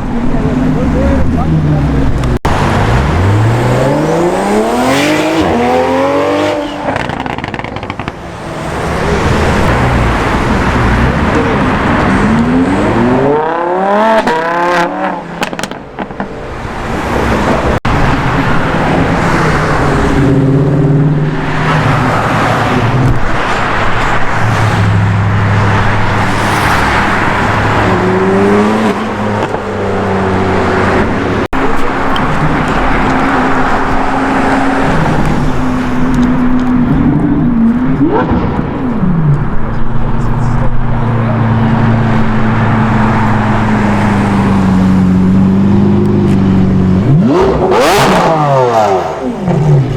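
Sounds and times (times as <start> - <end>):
car engines revving and accelerating: 0.0 - 49.9.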